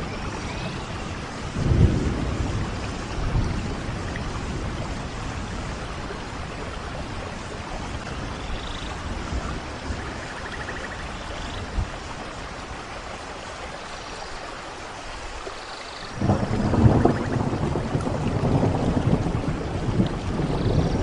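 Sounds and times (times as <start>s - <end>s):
rolling thunder: 0.0s - 8.4s, 16.2s - 21.0s
steady rain: 0.0s - 21.0s.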